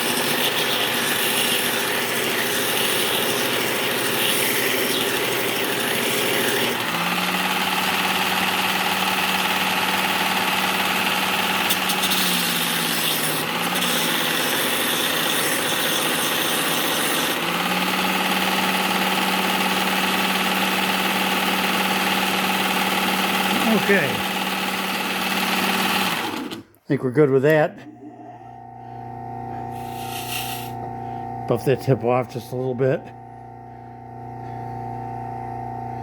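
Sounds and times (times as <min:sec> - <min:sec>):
belt sharpener grinding metal: 0:00.0 - 0:26.7, 0:29.4 - 0:31.0.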